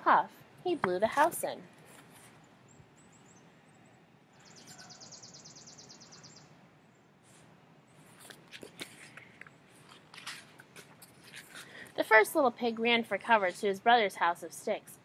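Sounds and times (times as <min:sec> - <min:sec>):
book pages rustling: 0:01.0 - 0:02.4, 0:08.0 - 0:11.9
bird trilling: 0:04.4 - 0:06.4.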